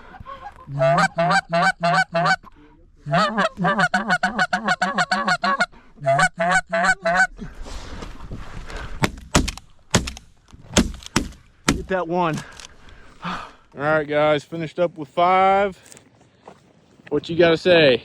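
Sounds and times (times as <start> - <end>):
goose honks and clucks: 0.0 - 7.3.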